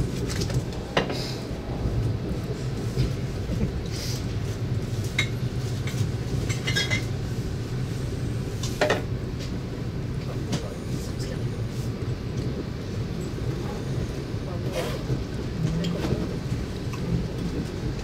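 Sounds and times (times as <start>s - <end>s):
train running rumble: 0.0s - 18.0s.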